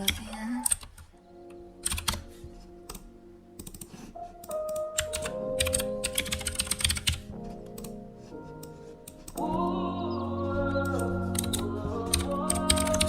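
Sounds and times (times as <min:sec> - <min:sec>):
computer keyboard typing: 0:00.0 - 0:01.0, 0:01.8 - 0:03.0, 0:03.6 - 0:08.0, 0:10.8 - 0:13.0
background music with held tones: 0:00.0 - 0:13.0.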